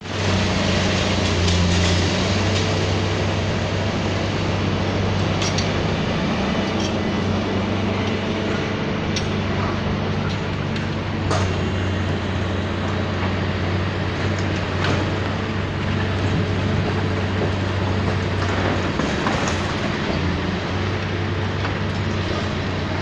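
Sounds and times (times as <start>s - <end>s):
demolition machinery engine hum: 0.0s - 23.0s.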